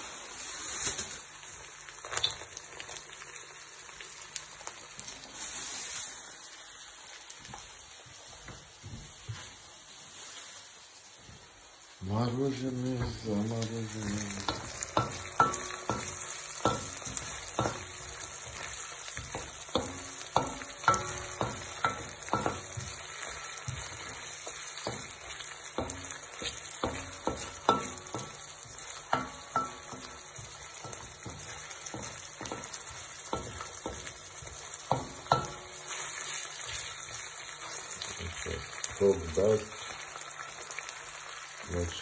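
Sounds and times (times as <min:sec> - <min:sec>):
vegetables sizzling in oil: 0:00.0 - 0:42.0
utensil knocking against pan: 0:14.4 - 0:18.0, 0:19.2 - 0:23.0, 0:24.8 - 0:25.2, 0:25.8 - 0:35.8.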